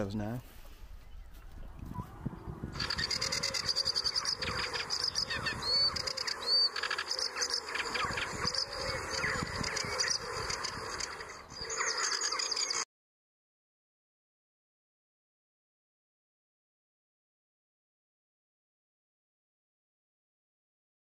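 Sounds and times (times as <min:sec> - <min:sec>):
warbler singing scratchy chatter: 0:02.4 - 0:12.8.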